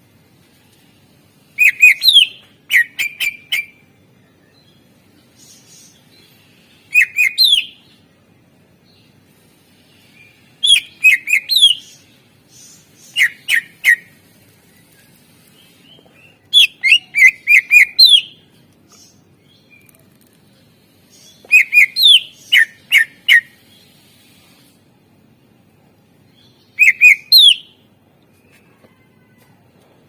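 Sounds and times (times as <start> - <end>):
bird whistling downslurred notes: 26.8 - 27.7.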